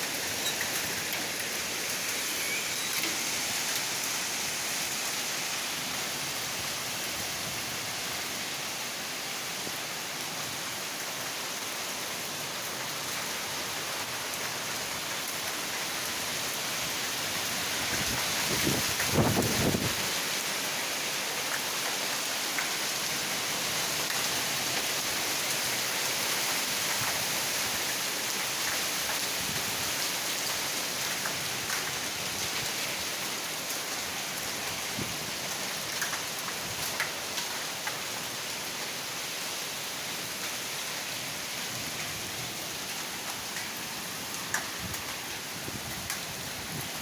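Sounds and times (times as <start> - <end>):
heavy rain hissing: 0.0 - 28.5
rain drop ticks: 0.1 - 3.9, 21.5 - 22.8, 31.1 - 32.0, 35.9 - 38.0, 44.4 - 45.2.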